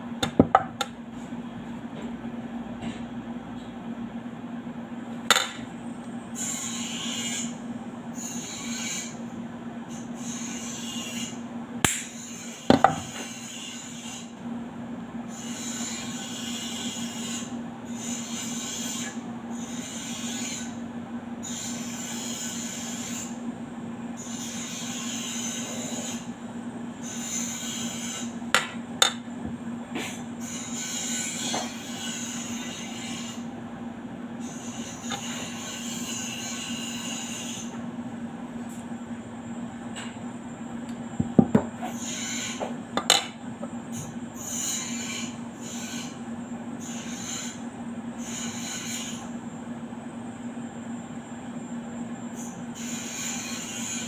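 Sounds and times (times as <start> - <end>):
steady low hum: 0.0 - 6.6
hand tool scraping: 34.5 - 36.2.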